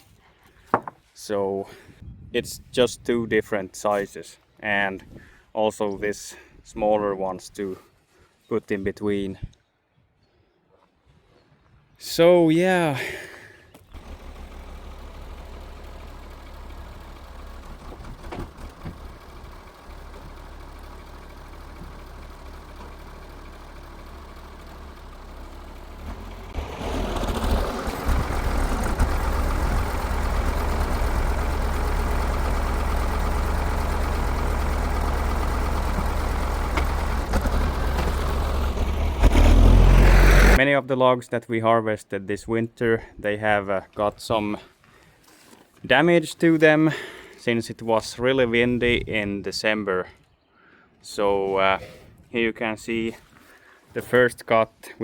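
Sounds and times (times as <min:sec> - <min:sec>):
sawmill engine running: 0:14.0 - 0:40.6.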